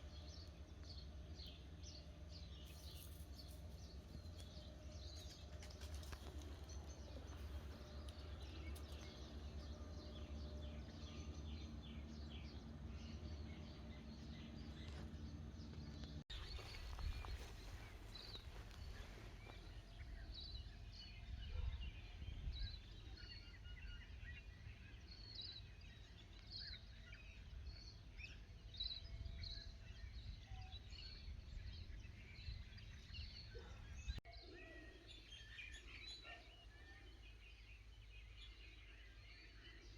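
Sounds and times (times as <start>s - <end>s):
low rumble of wind: 0.0s - 34.2s
small birds chirping: 0.0s - 39.9s.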